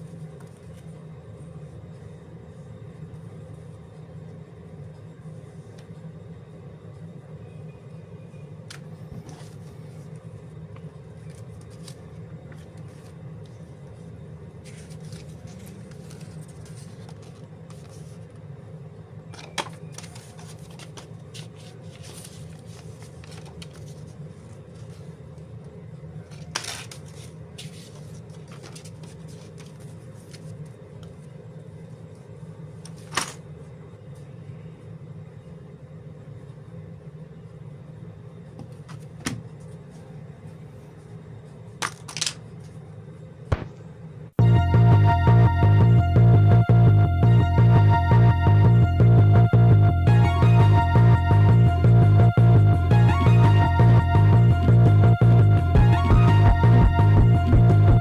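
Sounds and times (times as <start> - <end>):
low room hum: 0.0 - 58.0
plastic bags and paper rustling: 14.6 - 18.2, 19.6 - 25.1, 26.3 - 30.7.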